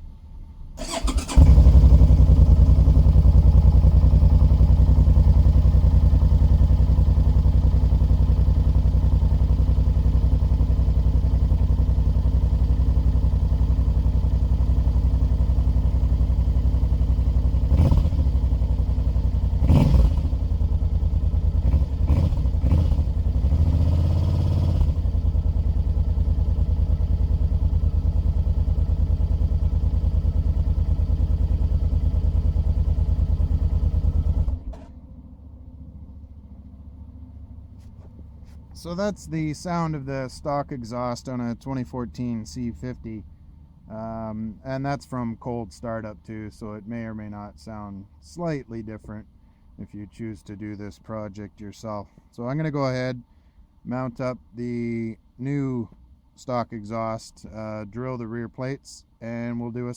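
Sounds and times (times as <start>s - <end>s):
electric starter cranking: 0.8s - 1.7s
engine revving: 0.8s - 34.9s
motorcycle engine idling: 0.8s - 40.2s.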